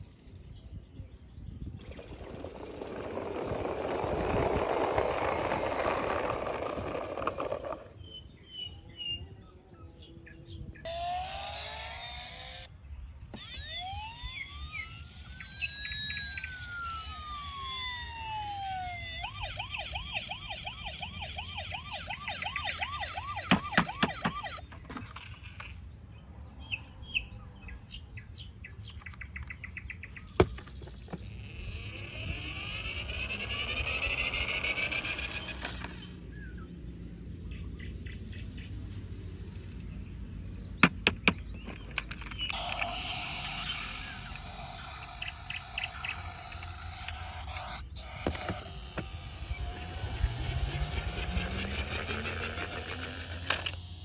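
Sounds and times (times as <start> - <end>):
chirping electronic tones: 1.4 - 9.3, 10.8 - 12.7, 13.3 - 24.9, 29.6 - 36.6, 41.0 - 54.0
electronic toy siren: 1.8 - 7.9, 10.8 - 12.7, 13.3 - 24.7, 31.1 - 36.1, 42.5 - 54.0.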